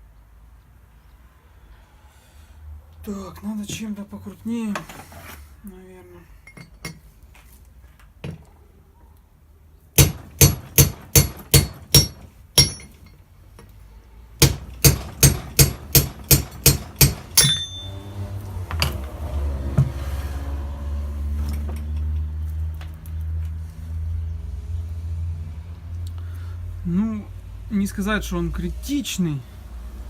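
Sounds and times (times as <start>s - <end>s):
hammer striking metal: 10.0s - 13.2s, 14.4s - 19.0s.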